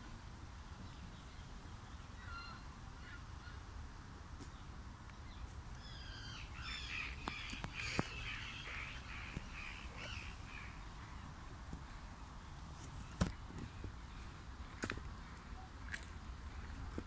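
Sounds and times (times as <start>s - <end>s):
harsh bird calls: 5.3s - 11.3s.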